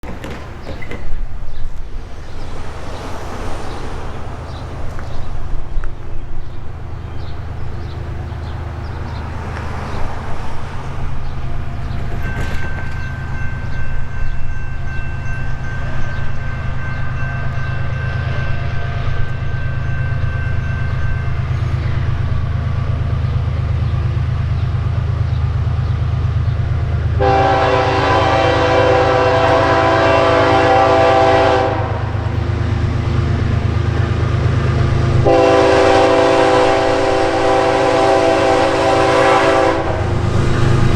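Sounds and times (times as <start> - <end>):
diesel locomotive engine rumble: 0.0 - 40.9
locomotive air horn blast: 27.2 - 32.3, 35.2 - 40.4.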